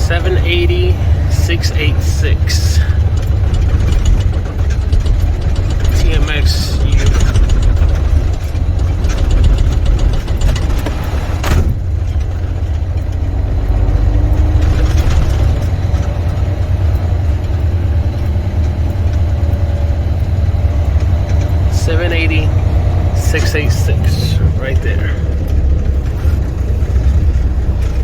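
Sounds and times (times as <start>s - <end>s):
truck diesel engine running: 0.0s - 28.0s.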